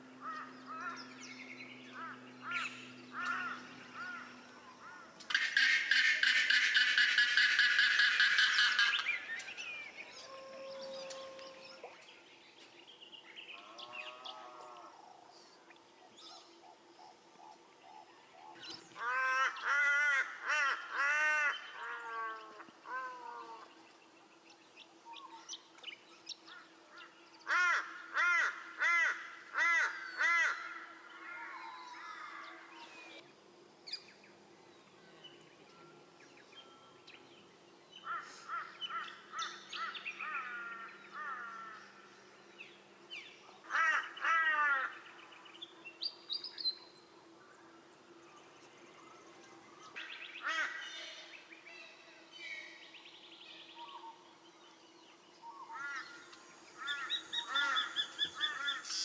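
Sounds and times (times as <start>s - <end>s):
loud bird calls rising and falling: 55.5s - 59.0s.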